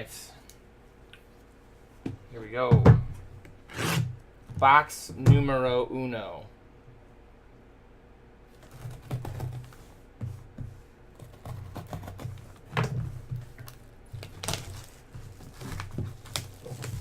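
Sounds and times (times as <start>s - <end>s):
cardboard and packaging handled: 8.6s - 17.0s.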